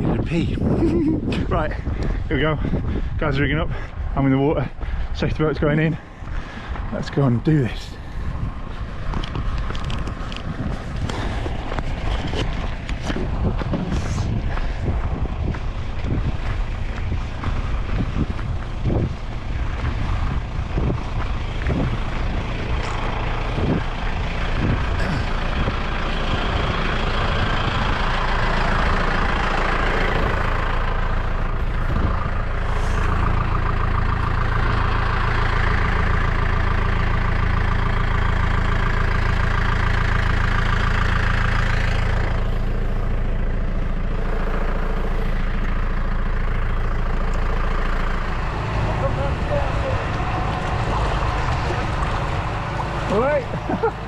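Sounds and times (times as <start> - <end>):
outboard motor running: 7.6 - 54.0.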